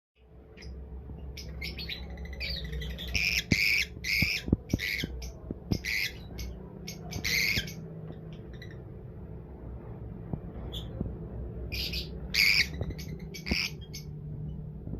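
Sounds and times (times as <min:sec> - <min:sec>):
lovebirds squawking and chirping: 0:00.5 - 0:08.9, 0:11.7 - 0:14.2.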